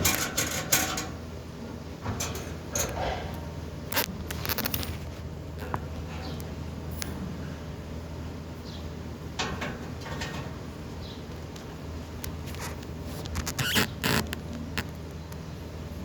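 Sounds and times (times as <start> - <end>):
bird scratching and crunching: 3.9 - 5.8, 11.3 - 15.0.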